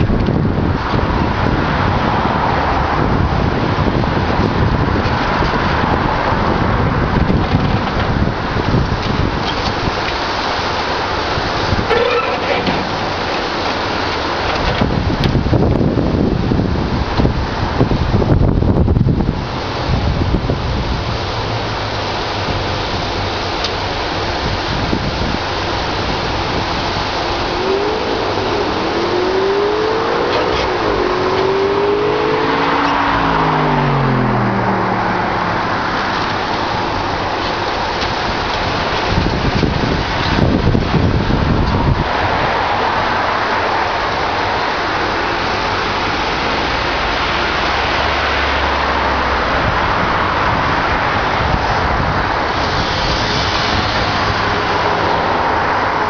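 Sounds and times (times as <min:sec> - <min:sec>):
loud rushing noise: 0:00.0 - 0:56.0
vehicle engine passing: 0:25.8 - 0:56.0.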